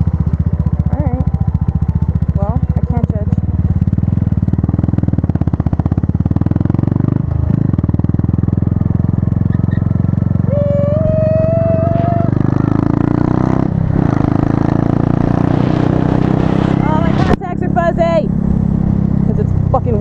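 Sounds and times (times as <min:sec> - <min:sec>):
motorcycle engine running: 0:00.0 - 0:20.0
wind rushing over microphone: 0:10.6 - 0:20.0.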